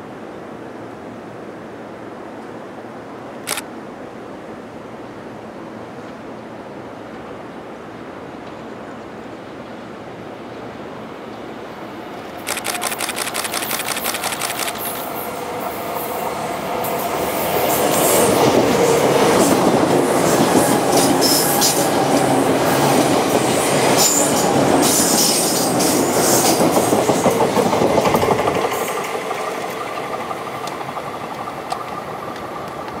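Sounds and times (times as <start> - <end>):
electric train passing: 9.1 - 33.0.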